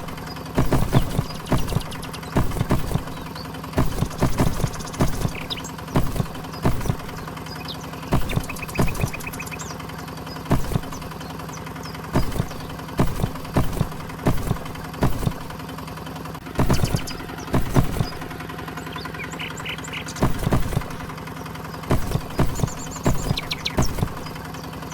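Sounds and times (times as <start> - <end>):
sharp knocks and clatters: 0.0 - 9.6, 10.4 - 11.4, 12.1 - 15.7, 16.4 - 18.4, 20.1 - 21.2, 21.9 - 24.6
motor humming: 0.0 - 24.9.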